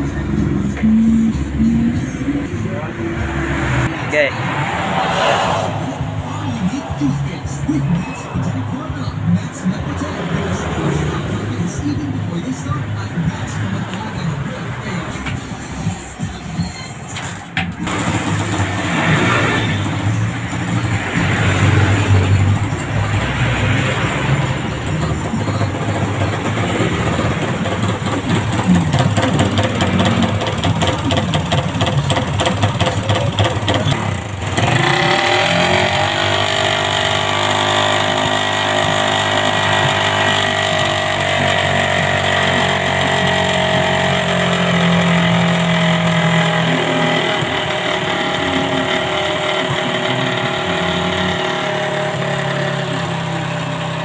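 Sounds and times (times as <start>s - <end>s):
motorcycle engine running: 17.8s - 54.0s.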